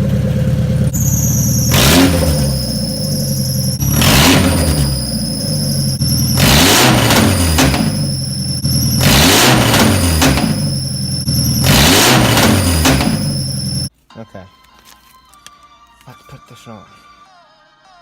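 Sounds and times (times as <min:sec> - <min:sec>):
car engine revving: 0:00.0 - 0:13.9
high-pitched whine: 0:01.0 - 0:13.9.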